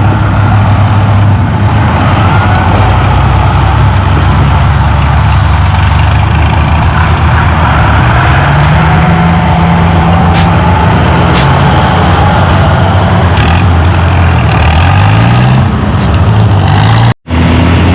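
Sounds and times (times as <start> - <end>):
tractor engine running: 0.0 - 17.9.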